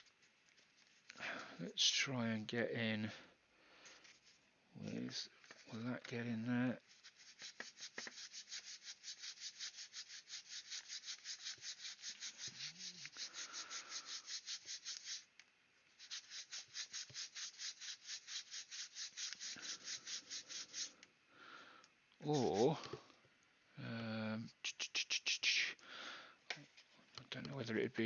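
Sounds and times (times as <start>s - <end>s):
abrasive tool rubbing plastic: 0.0s - 1.2s, 3.8s - 21.0s, 22.2s - 23.0s.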